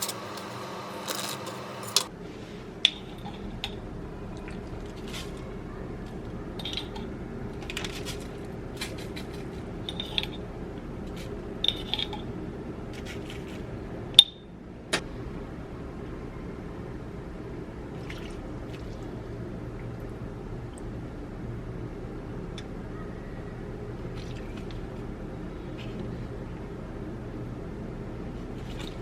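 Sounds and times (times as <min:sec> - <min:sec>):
utensils and dishes clinking: 0:00.0 - 0:02.1, 0:06.1 - 0:10.5, 0:11.1 - 0:12.3
low background hum: 0:00.0 - 0:29.0.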